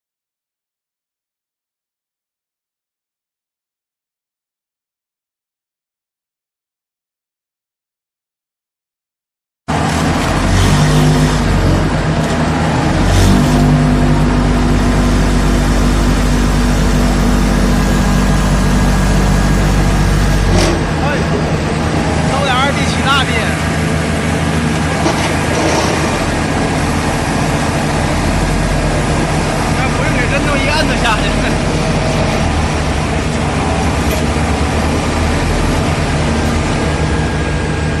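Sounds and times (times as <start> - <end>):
vibratory pile driver drone: 9.7 - 38.0.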